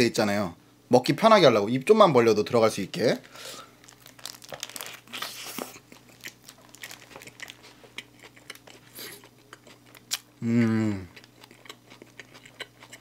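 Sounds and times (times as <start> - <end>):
biting and crunchy chewing: 3.8 - 10.4, 11.1 - 13.0.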